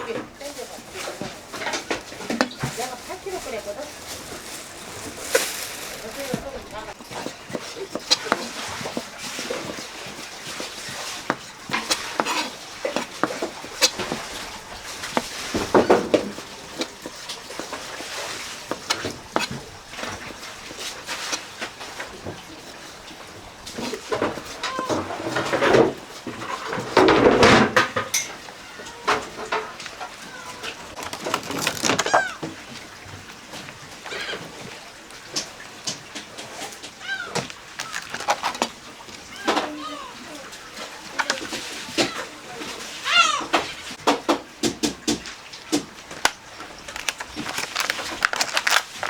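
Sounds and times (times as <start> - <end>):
fish being handled and cut: 0.0 - 49.0.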